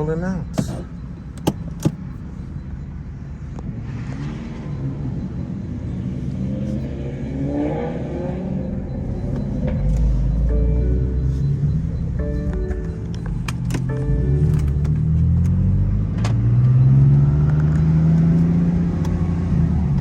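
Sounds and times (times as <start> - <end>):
performance car engines revving: 2.9 - 20.0
low exhaust rumble: 8.5 - 16.2.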